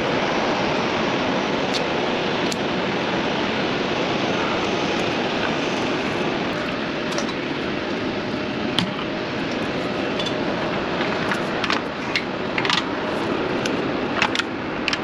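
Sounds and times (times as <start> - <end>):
hand tools clicking on metal: 9.6 - 15.0.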